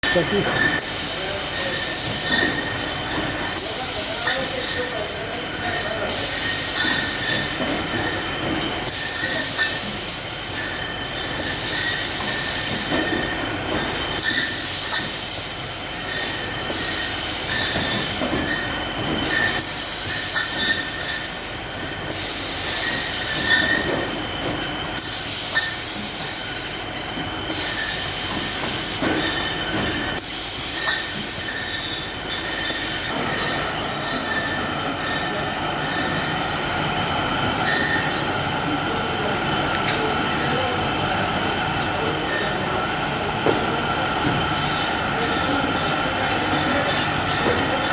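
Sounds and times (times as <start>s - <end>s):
packaging machine whine: 0.0s - 47.9s
high machine hiss: 0.1s - 8.2s.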